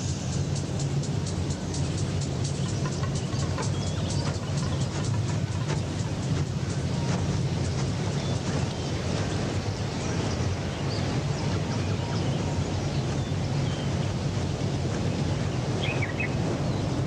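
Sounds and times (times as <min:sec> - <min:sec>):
low rumble: 0:00.0 - 0:17.0
wind-like hiss: 0:00.0 - 0:17.0
bird chirps: 0:01.7 - 0:06.1, 0:15.8 - 0:17.0.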